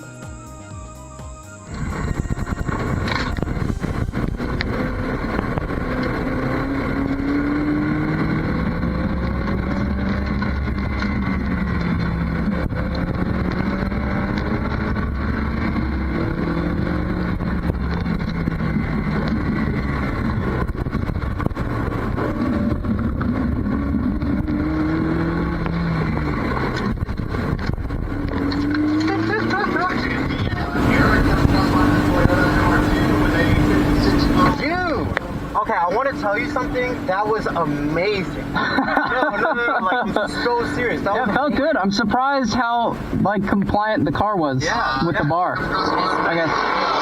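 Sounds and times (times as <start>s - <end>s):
road rumble: 0.0s - 47.0s
car engine accelerating through gears: 1.0s - 47.0s.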